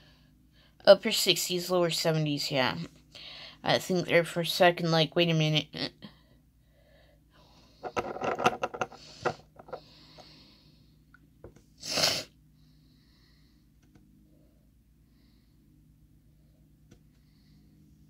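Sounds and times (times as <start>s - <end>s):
person breathing: 3.1s - 3.6s, 6.1s - 8.0s, 8.9s - 11.1s, 11.8s - 18.0s.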